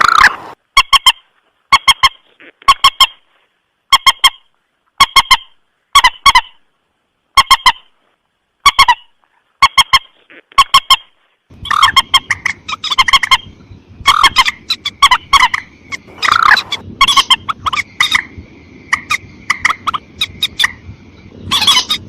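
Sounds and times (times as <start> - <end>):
rail bird calling sharp notes: 8.6 - 22.0.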